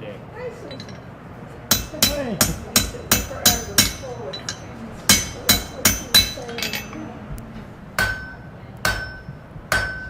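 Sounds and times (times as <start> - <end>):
hammer striking anvil: 1.7 - 7.1, 8.0 - 10.0.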